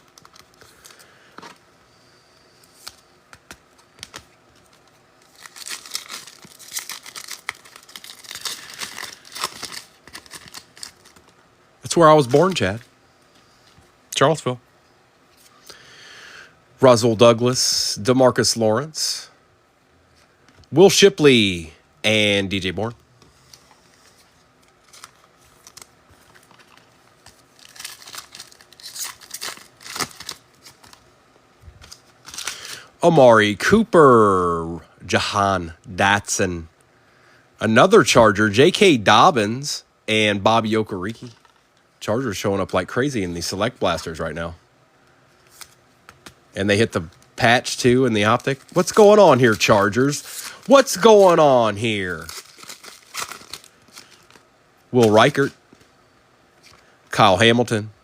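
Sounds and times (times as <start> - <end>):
foil wrapper crinkling and tearing: 0.0 - 1.1, 4.0 - 11.4, 24.6 - 31.0, 31.8 - 32.8, 47.0 - 54.4.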